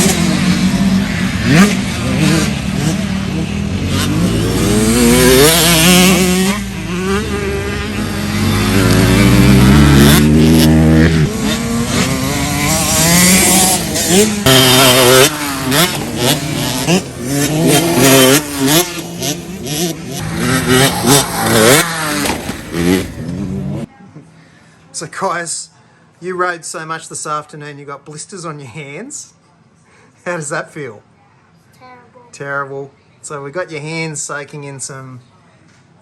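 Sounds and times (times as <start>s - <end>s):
dirt bikes revving: 0.0s - 23.9s.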